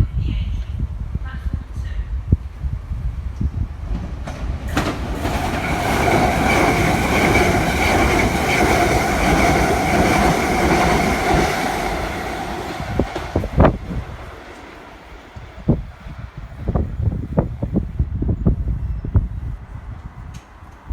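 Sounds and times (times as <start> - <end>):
train passing: 2.4 - 18.2.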